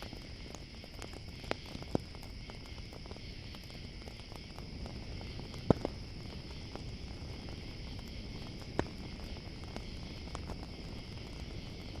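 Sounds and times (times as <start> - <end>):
campfire crackling: 0.0 - 12.0
crickets chirping: 0.0 - 12.0.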